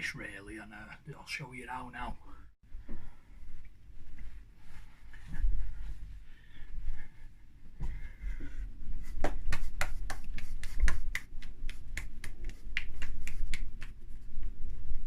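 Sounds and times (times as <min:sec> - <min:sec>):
hands clapping: 0:09.1 - 0:14.0.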